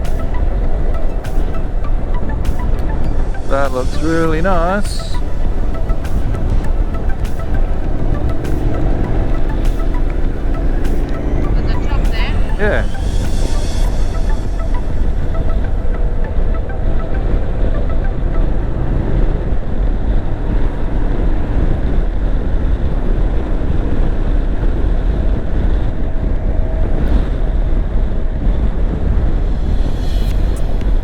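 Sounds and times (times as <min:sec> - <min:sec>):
road noise: 0:00.0 - 0:26.4, 0:27.1 - 0:31.0
wind rushing over microphone: 0:00.0 - 0:31.0.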